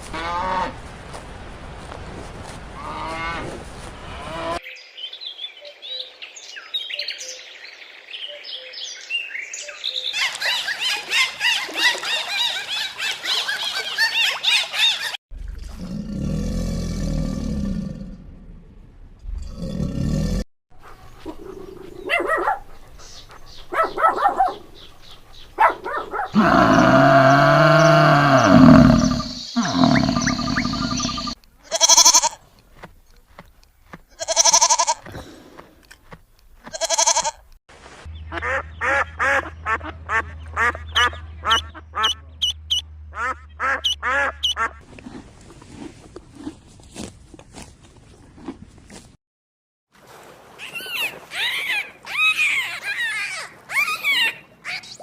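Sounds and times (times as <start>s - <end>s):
animal calls: 20.9s - 32.4s, 50.6s - 55.0s.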